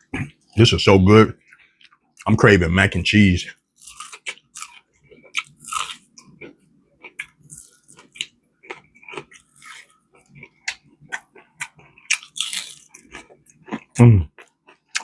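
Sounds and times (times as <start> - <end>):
chewing crunchy food: 3.6 - 15.0.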